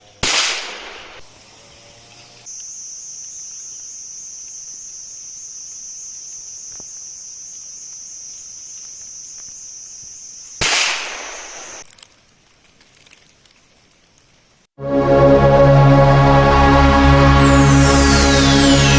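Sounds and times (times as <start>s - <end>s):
cicadas droning: 0.0s - 14.7s
gunshot echoing: 0.2s - 1.2s, 10.6s - 11.8s.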